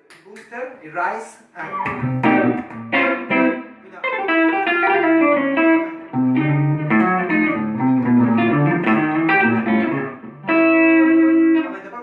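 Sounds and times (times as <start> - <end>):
clean electric guitar: 1.6 - 12.0.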